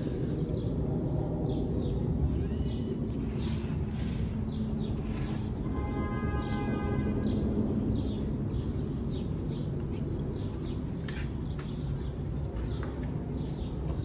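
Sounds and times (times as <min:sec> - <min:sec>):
steady low rumble: 0:00.0 - 0:05.7
small birds chirping: 0:00.0 - 0:06.5, 0:07.1 - 0:14.0.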